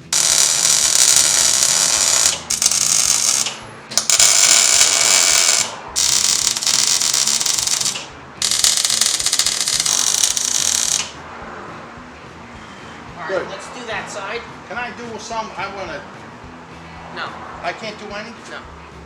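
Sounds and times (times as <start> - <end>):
welding arc crackling: 0.0 - 11.2.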